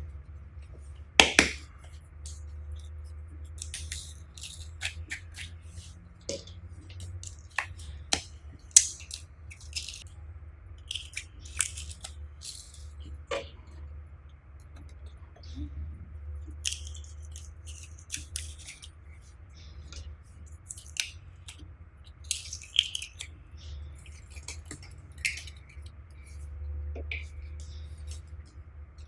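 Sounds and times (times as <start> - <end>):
steady low hum: 0.0 - 29.0
slime snapping: 1.2 - 1.7, 7.3 - 10.0.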